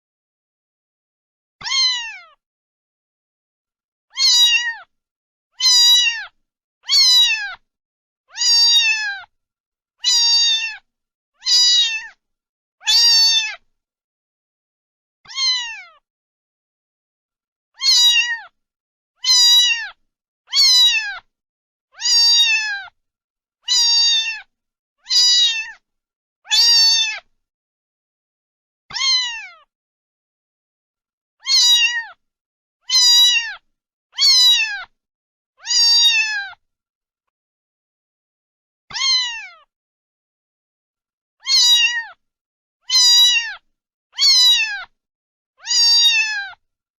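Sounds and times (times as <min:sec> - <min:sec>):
cat meowing: 0:01.6 - 0:02.4, 0:04.1 - 0:04.9, 0:05.6 - 0:07.6, 0:08.3 - 0:09.3, 0:10.0 - 0:12.2, 0:12.8 - 0:13.6, 0:15.3 - 0:16.0, 0:17.8 - 0:18.6, 0:19.2 - 0:21.3, 0:22.0 - 0:23.0, 0:23.6 - 0:25.8, 0:26.5 - 0:27.3, 0:28.9 - 0:29.7, 0:31.4 - 0:32.2, 0:32.8 - 0:35.0, 0:35.6 - 0:36.6, 0:38.9 - 0:39.7, 0:41.4 - 0:42.2, 0:42.8 - 0:43.6, 0:44.2 - 0:44.9, 0:45.6 - 0:46.6.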